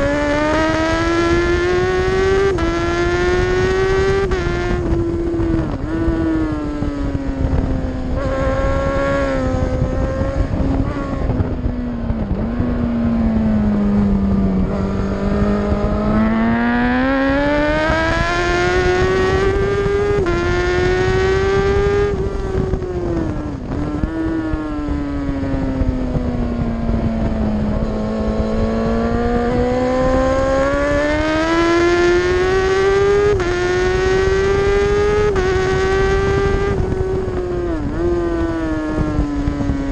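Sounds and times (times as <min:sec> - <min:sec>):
racing motorbike engine high revs: 0:00.0 - 0:39.9.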